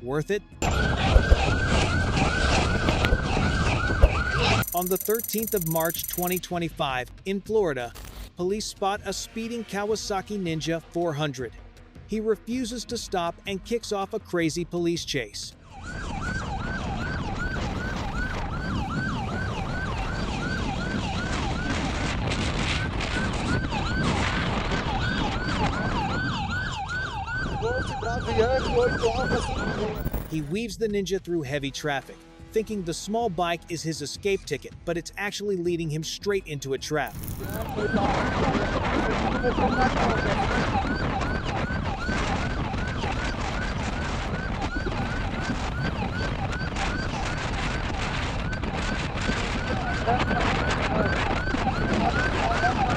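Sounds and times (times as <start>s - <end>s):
police siren yelping: 0.6s - 6.4s, 15.6s - 22.0s, 23.1s - 30.4s, 37.4s - 52.9s
road and engine noise: 15.5s - 30.7s, 37.1s - 52.9s.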